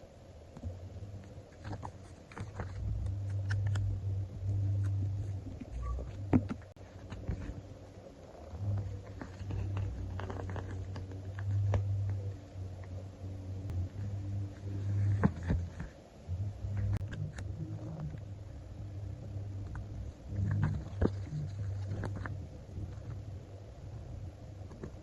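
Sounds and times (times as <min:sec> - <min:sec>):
low hum: 0:00.0 - 0:25.0
stickers being peeled and pressed: 0:01.6 - 0:07.5.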